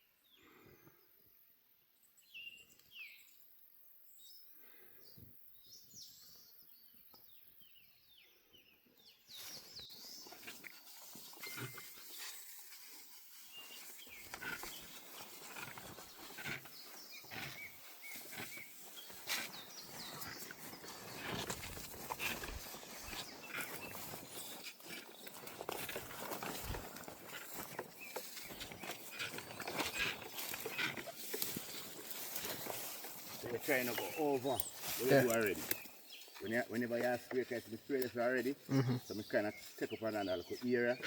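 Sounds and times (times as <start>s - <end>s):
birds chirping: 4.3s - 41.0s
rustling crackling noise: 10.3s - 37.8s.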